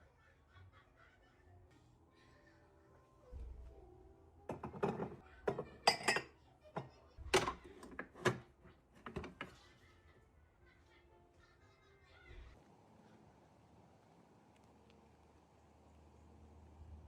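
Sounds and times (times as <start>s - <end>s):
dishes and cutlery clinking: 4.5s - 9.6s.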